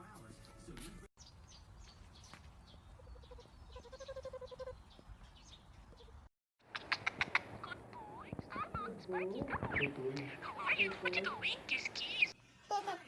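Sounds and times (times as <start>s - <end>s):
sharp clicks: 6.7s - 8.6s.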